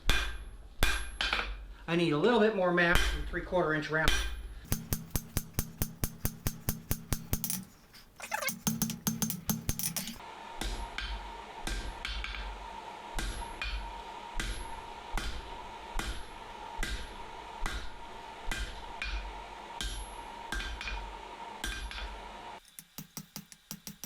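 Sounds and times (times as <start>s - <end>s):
hammer striking steel on anvil: 4.7s - 10.2s, 22.7s - 24.0s.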